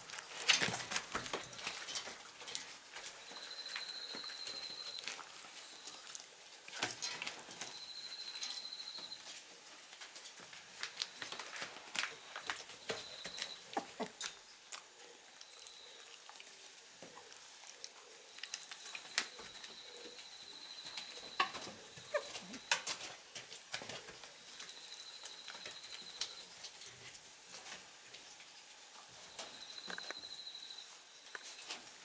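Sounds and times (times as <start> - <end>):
small paws and claws tapping: 0.0 - 9.2.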